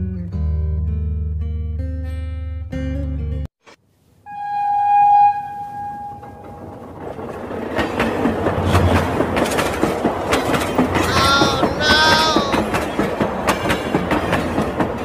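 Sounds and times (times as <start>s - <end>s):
train horn: 4.3s - 6.6s
train clattering on track: 6.2s - 15.0s.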